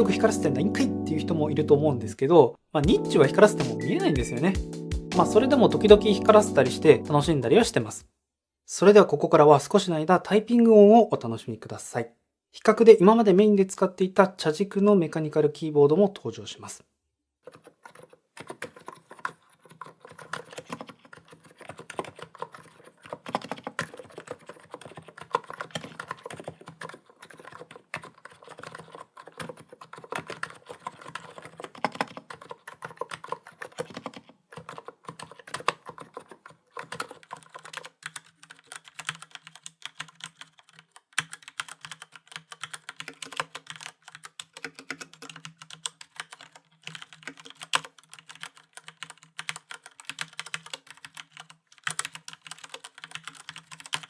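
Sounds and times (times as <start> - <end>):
typing on computer keyboards: 17.5 - 54.0.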